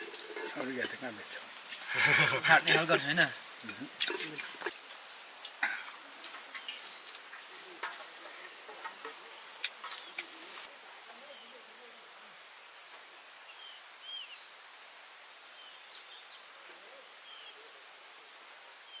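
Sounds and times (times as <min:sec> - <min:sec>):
birds chirping: 0:00.0 - 0:12.6
steady background hiss: 0:00.0 - 0:19.0.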